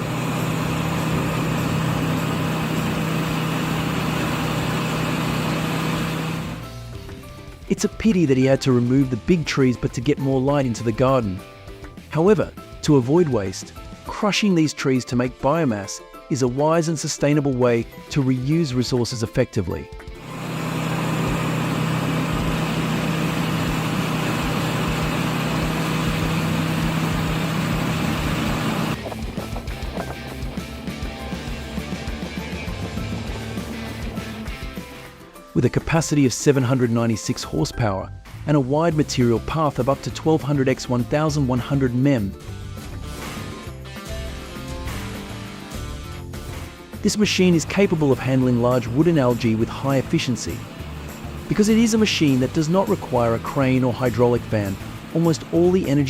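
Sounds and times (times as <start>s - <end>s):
wood chipper running: 0.0s - 7.7s, 20.1s - 35.5s, 42.4s - 56.0s.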